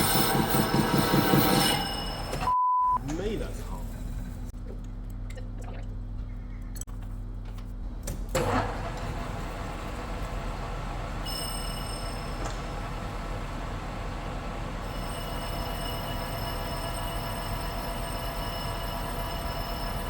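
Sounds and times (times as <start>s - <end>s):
high-pitched squeal: 0.0s - 2.5s
lathe cutting steel: 0.0s - 2.5s, 8.4s - 20.0s.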